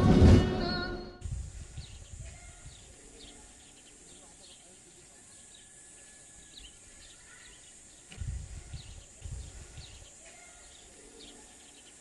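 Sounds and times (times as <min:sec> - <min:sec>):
small birds chirping: 0:01.2 - 0:12.0
steady hiss: 0:01.2 - 0:12.0.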